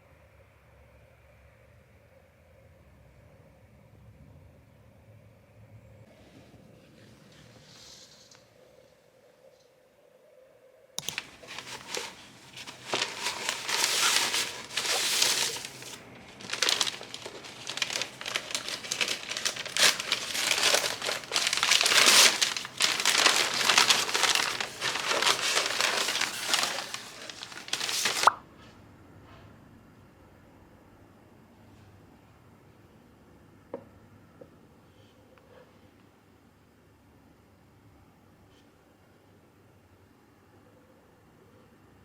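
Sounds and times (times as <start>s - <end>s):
packaging crinkling and rustling: 11.0s - 28.4s.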